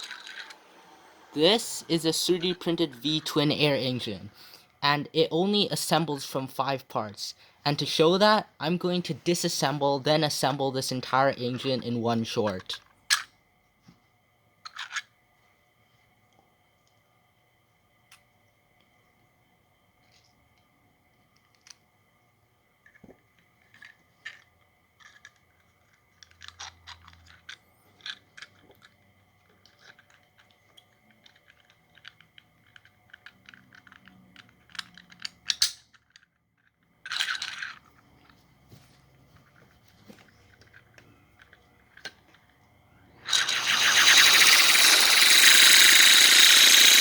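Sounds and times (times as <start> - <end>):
small air engine running rapidly: 0.0 - 2.9, 43.2 - 47.0
plastic parts clicking and tapping: 22.9 - 38.4, 39.4 - 42.6.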